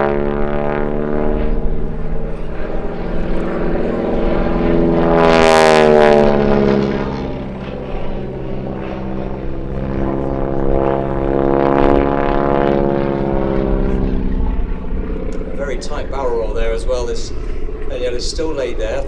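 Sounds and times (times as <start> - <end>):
biplane engine flying by: 0.0 - 19.0.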